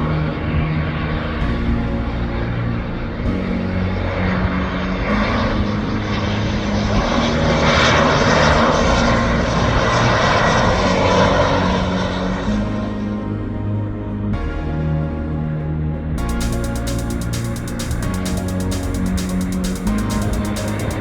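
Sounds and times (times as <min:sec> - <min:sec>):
jet airliner engines passing: 0:02.1 - 0:13.0.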